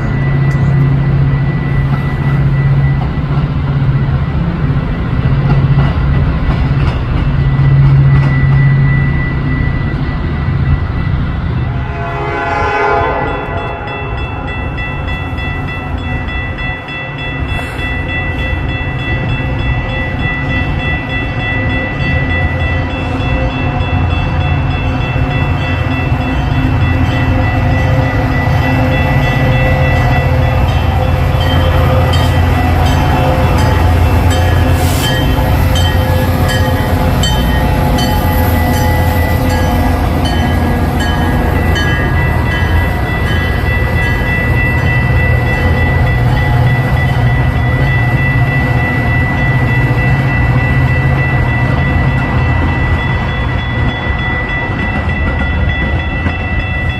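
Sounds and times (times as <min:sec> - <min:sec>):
train rumbling past: 0:00.0 - 0:56.9
steady high tones: 0:13.2 - 0:56.9.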